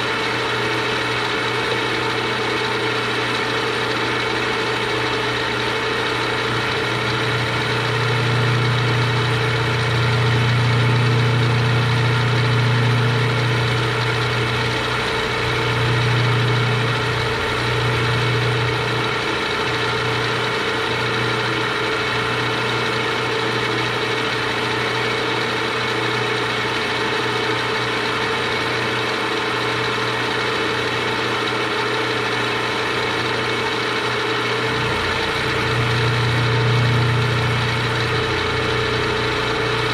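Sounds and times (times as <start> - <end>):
milling machine cutting metal: 1.7 - 26.2, 34.5 - 39.9.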